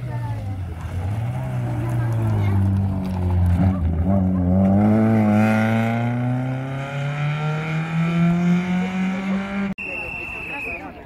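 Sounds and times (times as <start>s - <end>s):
rally car engine revving: 0.2s - 9.8s.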